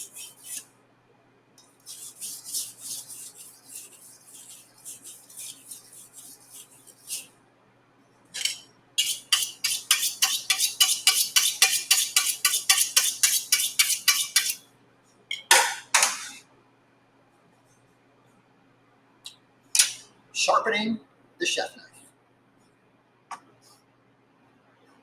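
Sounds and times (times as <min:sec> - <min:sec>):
knife scraping on whetstone: 0:00.0 - 0:00.6, 0:01.8 - 0:07.3, 0:08.4 - 0:14.6.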